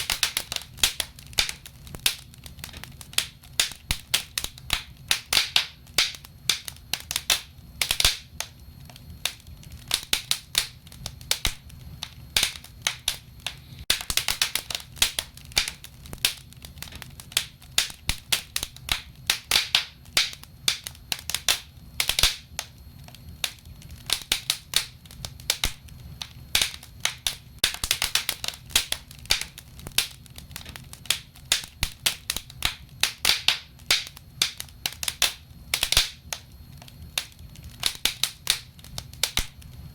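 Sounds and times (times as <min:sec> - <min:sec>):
low rumble of flames: 0:00.0 - 0:39.9
wood fire crackles and pops: 0:00.0 - 0:39.9.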